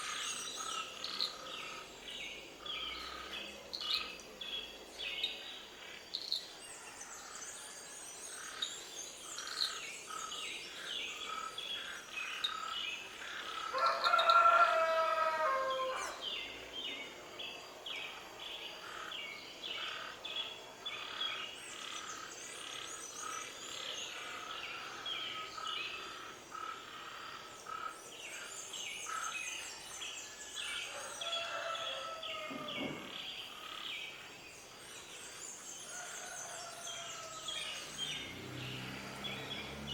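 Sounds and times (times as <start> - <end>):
rooster crowing: 13.7 - 16.2, 30.9 - 33.1, 35.9 - 39.5.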